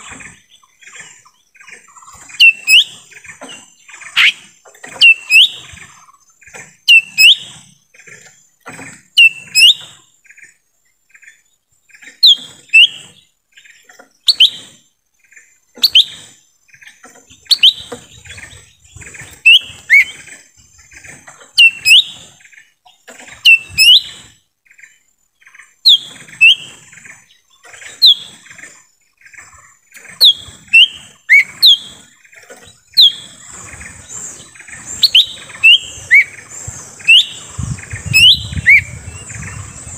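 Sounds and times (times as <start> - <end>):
bird sharp whistled calls: 2.0 - 5.9, 6.8 - 7.7, 9.2 - 10.0, 12.2 - 13.2, 14.2 - 14.8, 15.8 - 16.4, 17.4 - 20.3, 21.5 - 22.3, 23.4 - 24.4, 25.8 - 26.9, 27.9 - 28.4, 30.1 - 32.2, 32.8 - 39.9.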